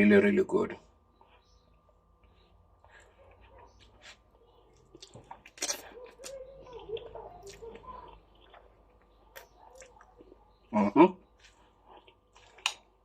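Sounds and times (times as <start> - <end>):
person chewing and slurping noodles: 1.0 - 10.6, 11.2 - 13.0
small mouth clicks: 4.7 - 10.4.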